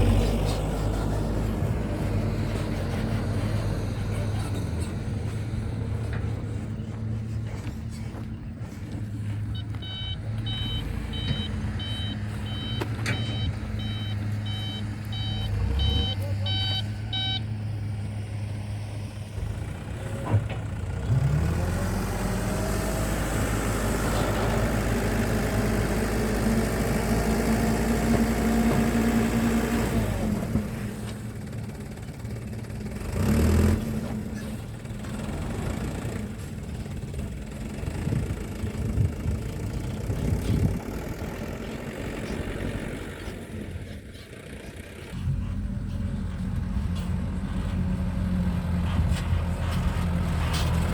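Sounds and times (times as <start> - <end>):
heavy diesel engines running: 0.0 - 50.9
engine revving: 8.6 - 18.0, 19.3 - 31.3, 32.9 - 36.6
truck reversing alarm beeping: 9.2 - 17.8.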